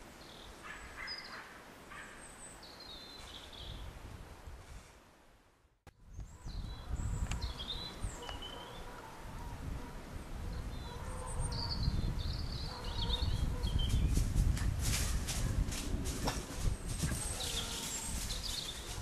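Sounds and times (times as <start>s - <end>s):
songbirds warbling: 0.2s - 3.9s, 6.0s - 9.6s, 10.2s - 14.2s, 16.7s - 19.0s
low rustling noise: 13.8s - 19.0s.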